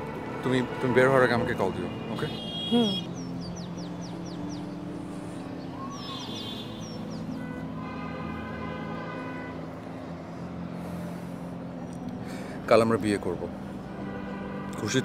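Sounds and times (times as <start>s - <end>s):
small birds chirping: 2.4s - 4.8s, 5.6s - 7.4s.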